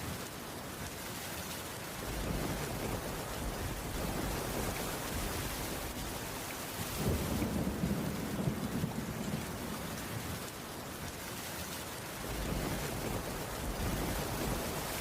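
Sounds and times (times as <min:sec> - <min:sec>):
heavy rain on wooden roof: 0:00.0 - 0:15.0
thunder rumbling: 0:07.0 - 0:10.3, 0:12.3 - 0:15.0.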